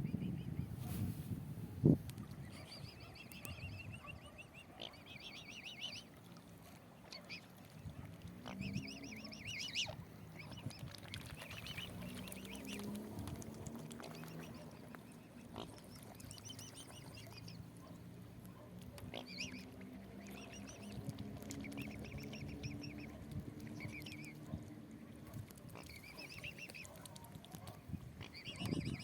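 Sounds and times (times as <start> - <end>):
waterfowl calling: 19.1 - 24.6.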